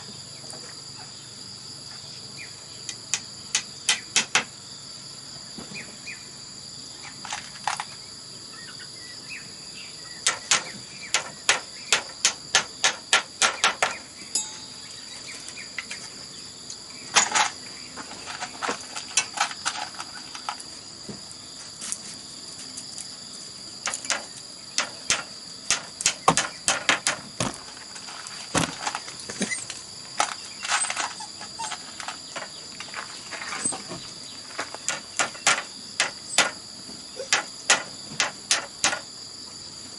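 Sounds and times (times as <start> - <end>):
crickets chirping: 0.0 - 39.9
hand tool striking bamboo: 2.9 - 4.5, 10.2 - 14.8, 23.8 - 27.6, 34.6 - 36.6, 37.2 - 39.1.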